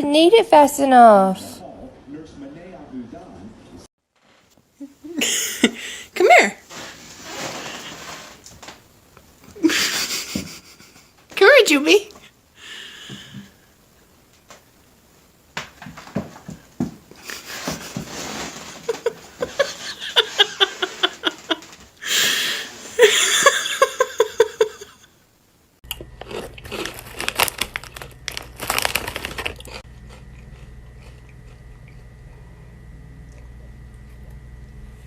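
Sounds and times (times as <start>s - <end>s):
quiet steady hum: 0.0s - 35.0s
pet crunching food: 25.9s - 32.6s.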